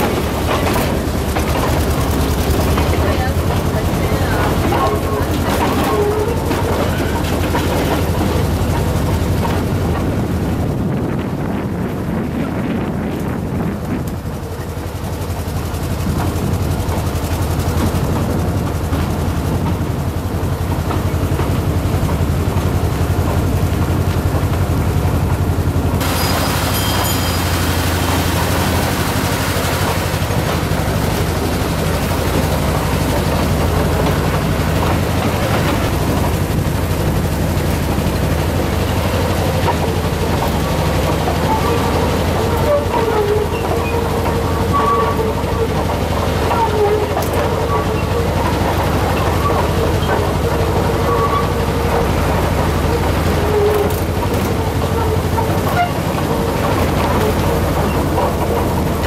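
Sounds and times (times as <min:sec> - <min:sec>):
train engine rumble: 0:00.0 - 0:59.0
bright hiss: 0:26.0 - 0:29.8.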